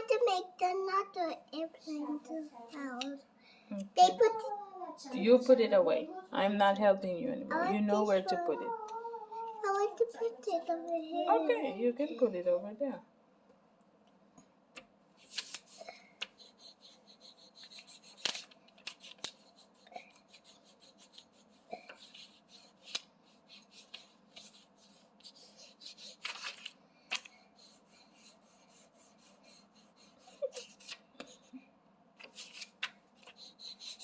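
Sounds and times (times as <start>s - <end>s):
colouring tool scratching on paper: 15.2s - 26.6s, 27.5s - 31.6s, 32.2s - 34.0s.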